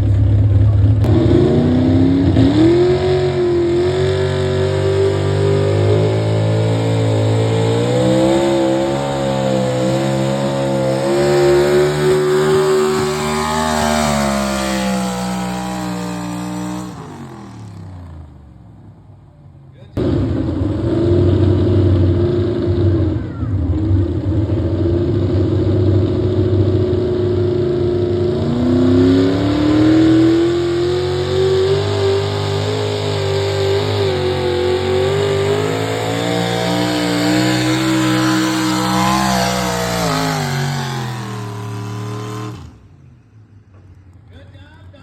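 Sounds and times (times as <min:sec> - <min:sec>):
engine running hard under load: 0:32.0 - 0:42.8.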